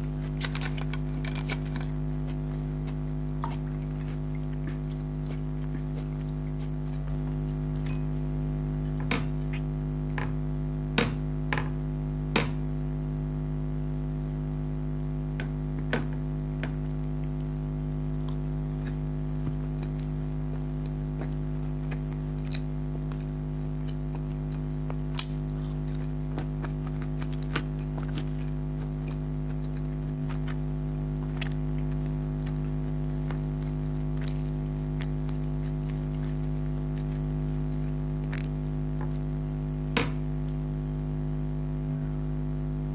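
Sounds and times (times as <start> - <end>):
close eating mouth sounds: 0.0 - 9.8, 16.6 - 41.2
steady low hum: 0.0 - 42.9.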